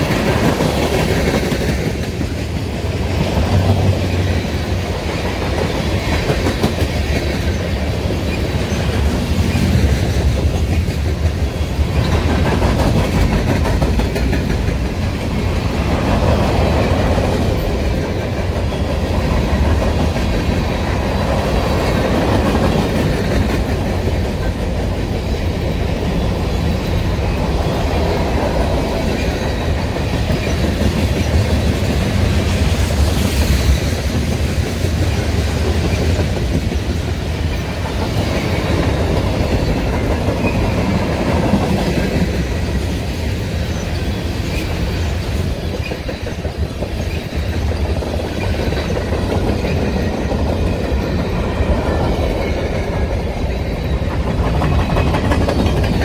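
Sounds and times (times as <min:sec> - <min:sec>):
freight train cars rumbling past: 0:00.0 - 0:56.0.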